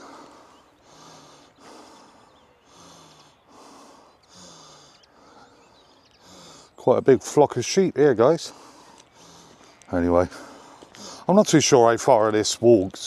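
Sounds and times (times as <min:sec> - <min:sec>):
man breathing while walking: 0:00.0 - 0:06.8, 0:08.4 - 0:11.4.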